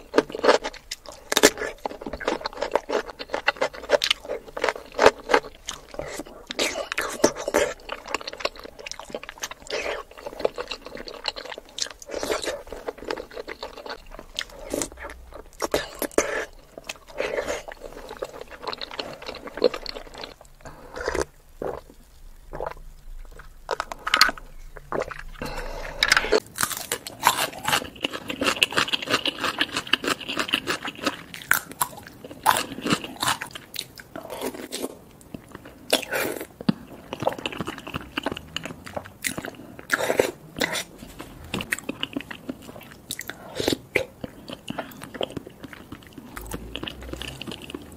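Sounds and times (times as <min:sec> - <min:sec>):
person chewing: 0:00.0 - 0:47.9.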